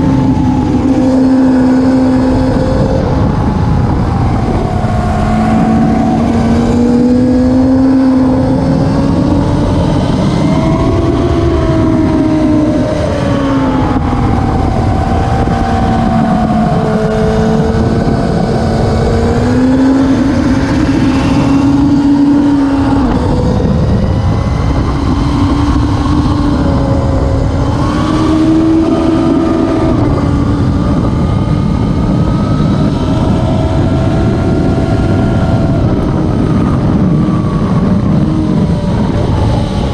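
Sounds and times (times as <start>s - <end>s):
racing motorcycle engine revving: 0.0s - 39.9s.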